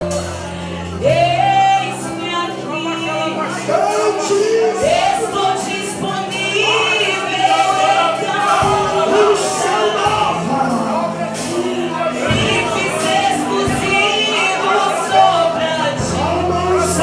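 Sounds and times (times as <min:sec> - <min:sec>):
keyboard chords: 0:00.0 - 0:17.0
person singing worship song: 0:00.0 - 0:17.0.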